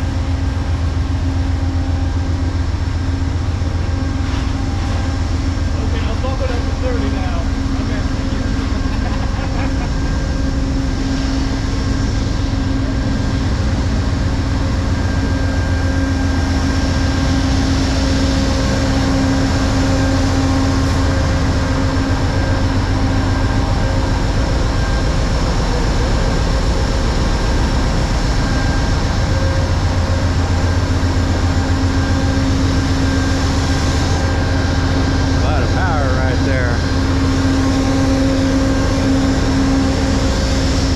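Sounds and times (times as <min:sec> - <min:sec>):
train engine idling: 0:00.0 - 0:40.9.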